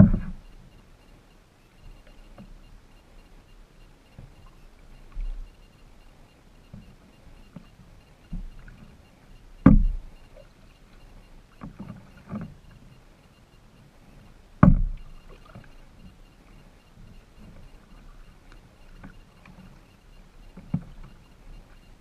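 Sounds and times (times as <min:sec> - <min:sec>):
kayak paddle strokes: 0:00.0 - 0:22.0
small water splashes and knocks: 0:09.6 - 0:10.5, 0:14.6 - 0:16.2.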